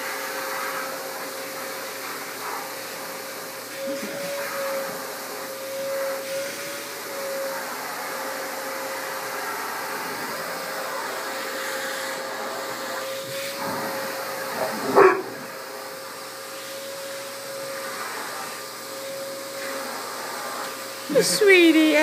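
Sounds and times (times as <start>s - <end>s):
vacuum cleaner motor whine: 0.0s - 22.0s
dog barking: 14.7s - 15.5s.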